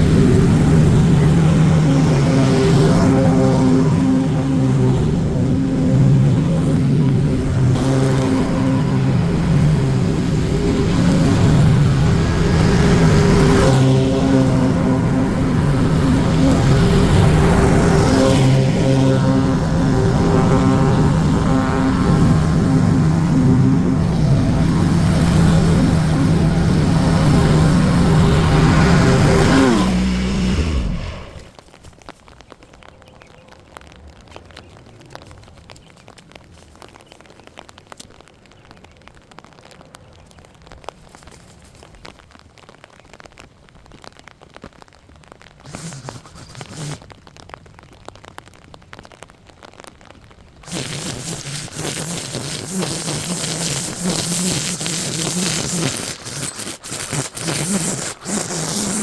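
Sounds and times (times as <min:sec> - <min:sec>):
lawn mower engine running: 0:00.0 - 0:31.3, 0:45.7 - 0:47.0, 0:50.6 - 0:59.0.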